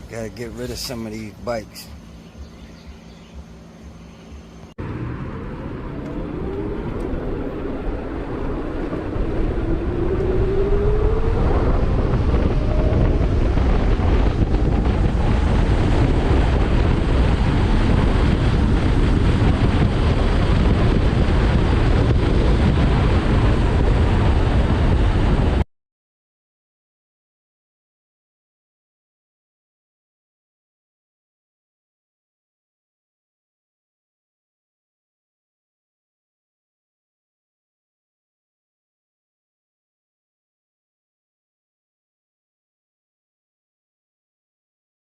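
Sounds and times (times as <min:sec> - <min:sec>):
wind noise on microphone: 0:04.9 - 0:25.6.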